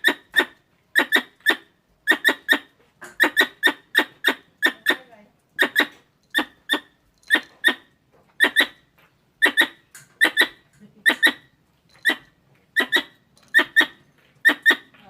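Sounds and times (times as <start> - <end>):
squirrel chirping: 0.0 - 15.0.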